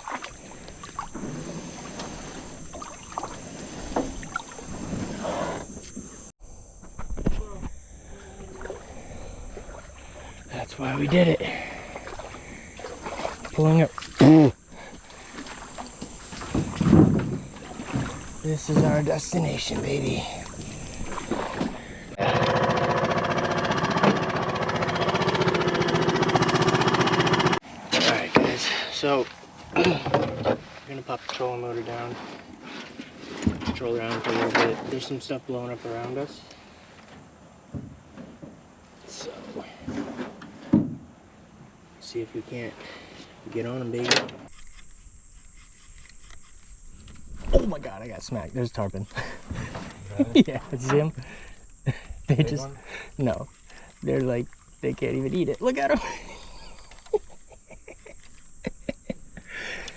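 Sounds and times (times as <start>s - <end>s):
water splashing around boat: 0.0s - 6.2s, 8.2s - 22.2s, 44.5s - 59.9s
outboard motor running: 0.0s - 6.3s, 7.0s - 27.6s, 44.5s - 59.9s
thin high-pitched whine: 0.0s - 22.2s, 43.5s - 59.9s.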